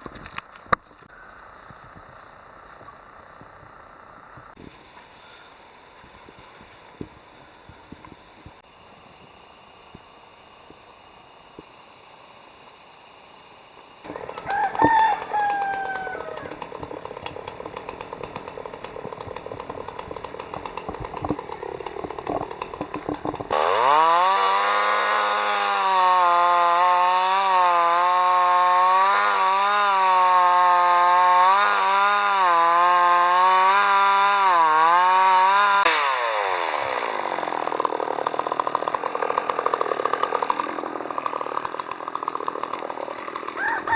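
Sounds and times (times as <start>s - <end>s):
chainsaw idling and revving: 5.7s - 43.9s
rooster crowing: 14.1s - 17.4s, 43.5s - 43.9s.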